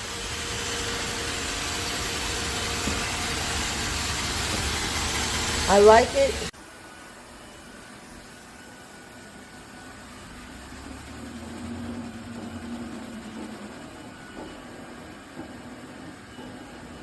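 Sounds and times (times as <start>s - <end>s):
robot vacuum running: 0.0s - 6.5s, 9.4s - 14.7s.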